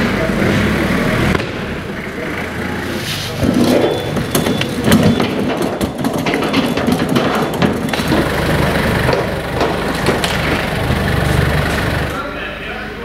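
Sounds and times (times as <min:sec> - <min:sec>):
engine idling: 0:00.0 - 0:13.0
heavy equipment clattering: 0:03.2 - 0:12.2.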